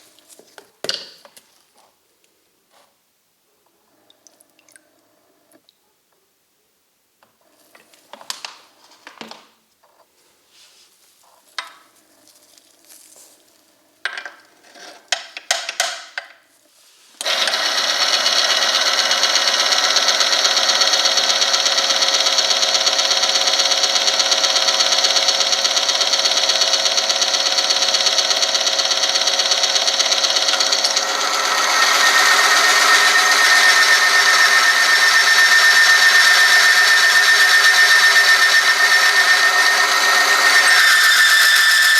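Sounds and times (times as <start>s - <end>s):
motor running and rubbing metal: 17.2s - 41.9s
high steady whine: 30.5s - 41.9s.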